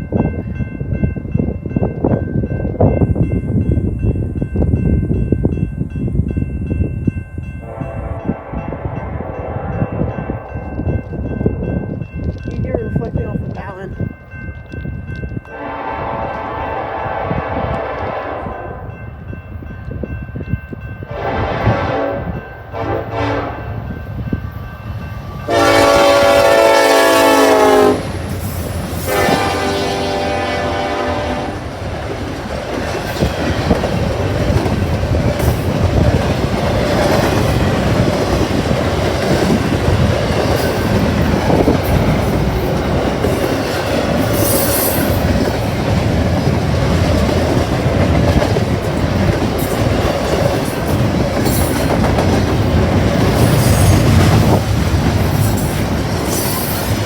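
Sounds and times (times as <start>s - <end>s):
train air horn blast: 7.7s - 10.6s, 15.5s - 18.9s, 21.1s - 23.8s, 25.5s - 28.2s, 29.1s - 31.6s.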